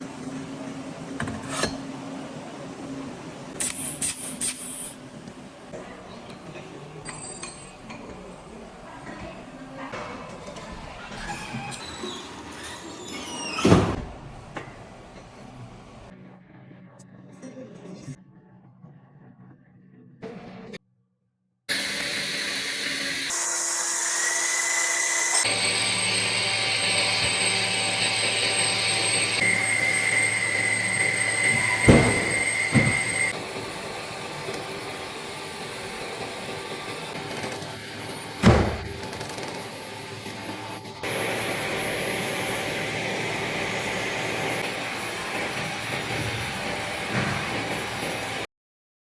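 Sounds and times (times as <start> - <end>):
welding machine hiss and whine: 21.7 - 38.4, 39.0 - 48.4.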